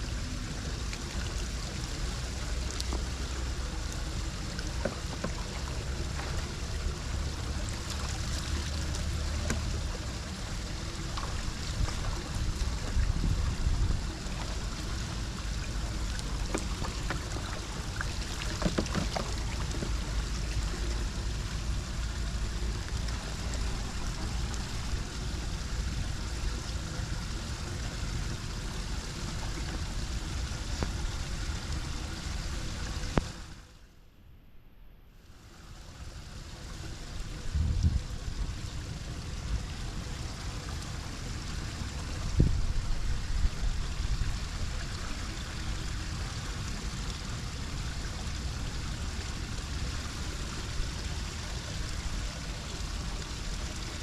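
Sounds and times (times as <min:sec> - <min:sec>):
water rushing into drain: 0:00.0 - 0:33.6, 0:35.4 - 0:54.0
low rumble: 0:00.0 - 0:35.1, 0:35.9 - 0:54.0
small knocks: 0:18.4 - 0:19.3.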